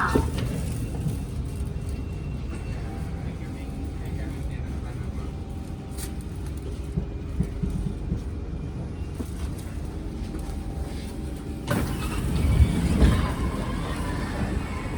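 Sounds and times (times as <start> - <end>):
train interior rumble and knocks: 0.0 - 14.9.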